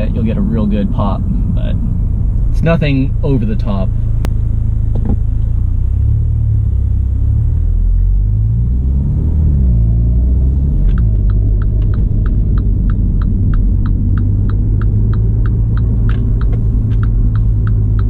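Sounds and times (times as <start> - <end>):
car engine deep rumble: 0.0 - 18.0
regular ticking: 10.8 - 18.0.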